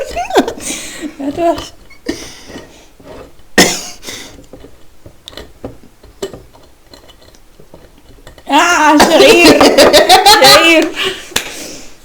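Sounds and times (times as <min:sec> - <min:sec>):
person coughing: 0:03.6 - 0:04.0.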